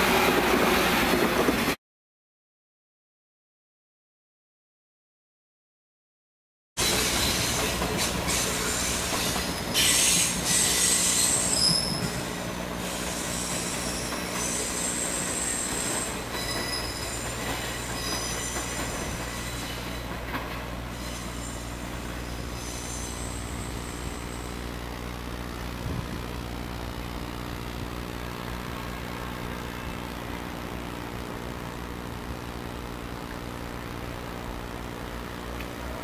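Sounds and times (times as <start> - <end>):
train rumbling: 0.0 - 1.8, 6.8 - 36.0
train wheels squealing: 6.8 - 20.2, 20.9 - 24.5.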